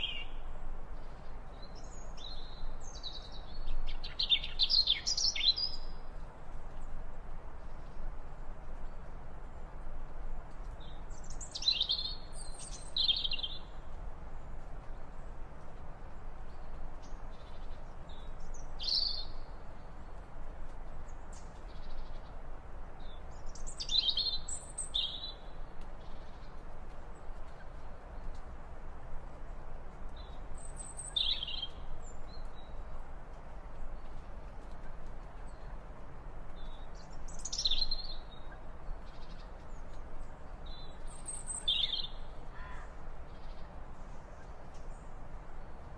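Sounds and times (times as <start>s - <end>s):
steady background hiss: 0.0s - 45.9s
bird chirps: 10.8s - 13.7s, 30.2s - 32.8s, 36.6s - 39.5s, 40.6s - 43.6s.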